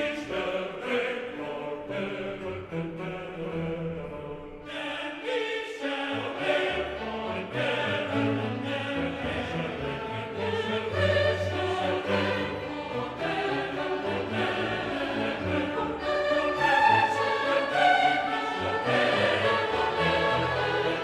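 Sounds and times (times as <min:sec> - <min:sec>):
choir singing: 0:00.0 - 0:21.0
orchestral accompaniment: 0:05.8 - 0:21.0.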